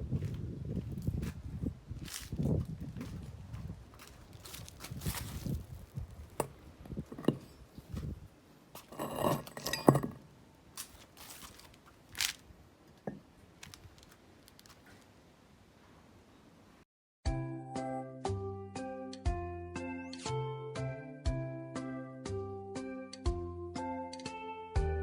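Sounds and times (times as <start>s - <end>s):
small hard objects clinking: 4.0s - 6.5s, 10.8s - 12.4s, 13.0s - 14.9s.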